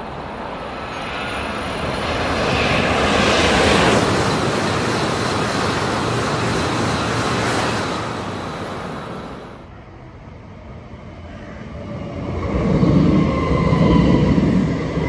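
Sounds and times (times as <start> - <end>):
train passing at speed: 0.0 - 15.0.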